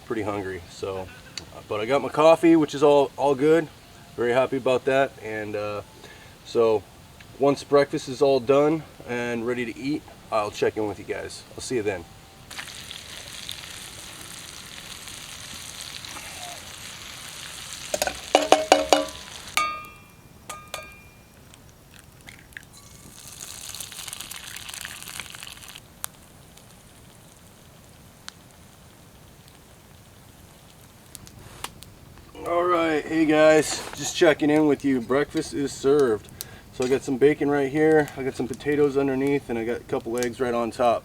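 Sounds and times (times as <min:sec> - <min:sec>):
food sizzling in a pan: 0:12.4 - 0:39.5
sharp ringing knocks: 0:18.0 - 0:21.3.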